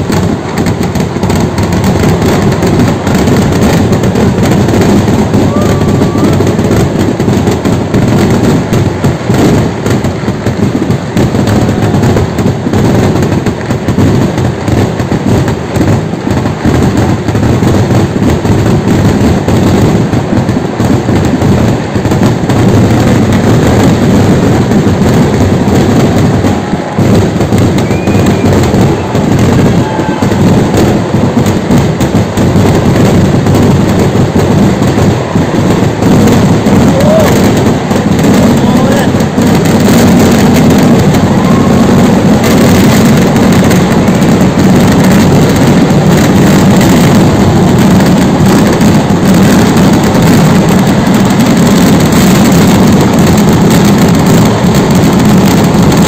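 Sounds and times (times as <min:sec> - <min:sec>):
fireworks barrage: 0:00.0 - 0:56.0.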